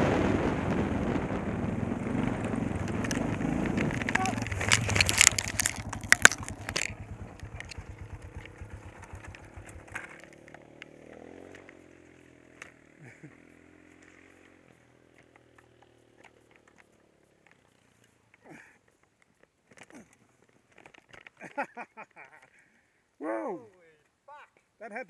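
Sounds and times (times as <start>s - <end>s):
distant motorcycle passing: 0.0s - 18.5s
dirt bike engine idling: 1.0s - 19.2s.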